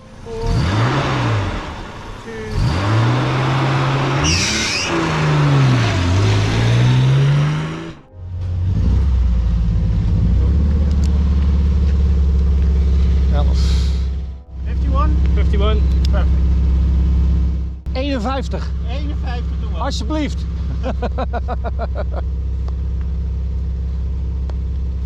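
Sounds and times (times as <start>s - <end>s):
rally car engine revving: 0.0s - 25.0s
low engine idle: 8.2s - 25.0s.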